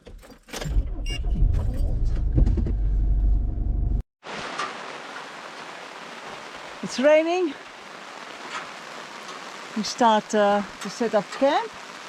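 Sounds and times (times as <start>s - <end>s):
vehicle engine rumble: 0.6s - 4.0s
rain falling: 4.2s - 12.0s.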